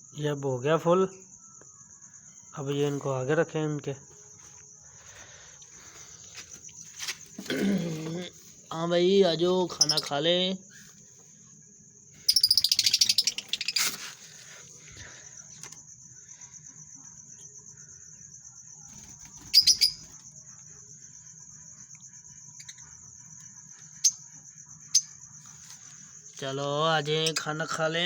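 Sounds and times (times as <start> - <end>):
lovebirds chattering: 9.1 - 10.9, 12.2 - 14.6, 18.9 - 20.2, 27.0 - 27.8.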